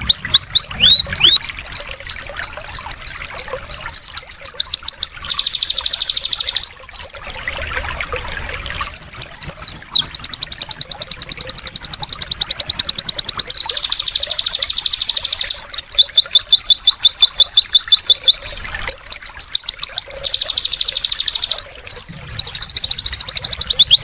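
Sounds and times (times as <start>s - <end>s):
bird chip notes and trills: 0.0s - 24.0s
trickling water: 0.0s - 24.0s.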